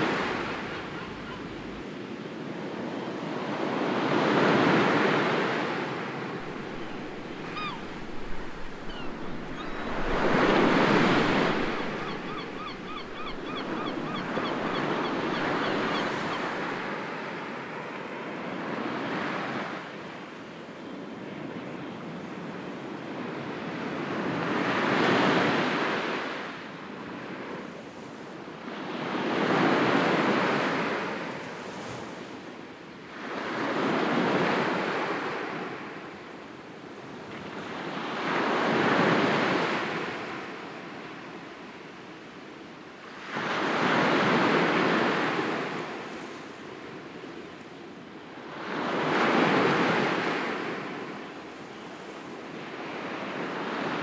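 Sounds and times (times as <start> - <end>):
sea waves breaking: 0.0 - 2.2, 3.7 - 18.0.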